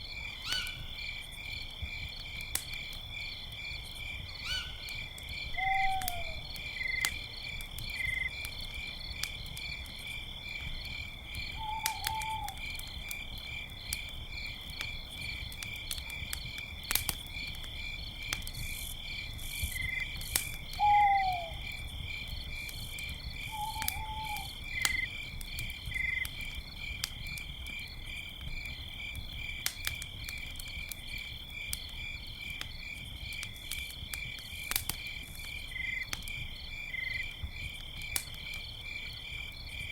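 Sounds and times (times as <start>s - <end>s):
campfire crackling: 0.0s - 39.9s
crickets chirping: 0.0s - 39.9s.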